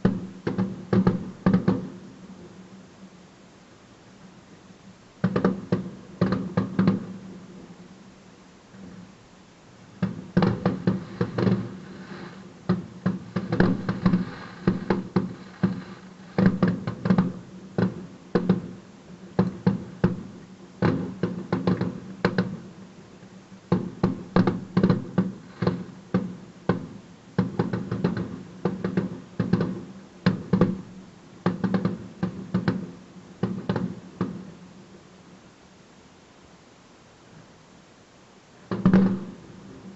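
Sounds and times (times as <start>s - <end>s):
fireworks bangs and crackles: 0.0s - 2.5s, 5.2s - 7.7s, 9.9s - 34.7s, 38.6s - 39.9s.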